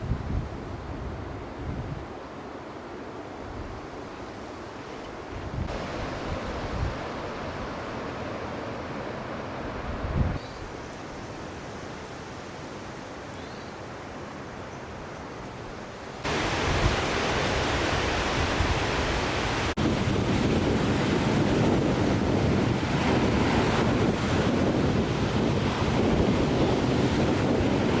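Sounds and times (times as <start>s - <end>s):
wind buffeting microphone: 0.0s - 2.2s, 5.3s - 7.8s, 9.7s - 10.4s, 16.3s - 28.0s
waves washing on shore: 4.1s - 13.3s, 15.7s - 28.0s.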